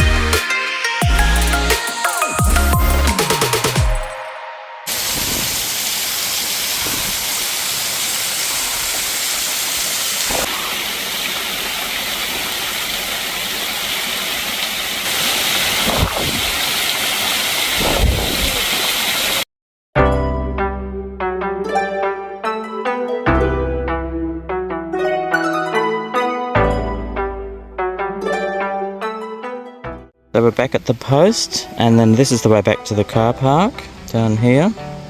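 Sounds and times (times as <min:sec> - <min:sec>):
waterfall rushing: 0:02.2 - 0:19.4.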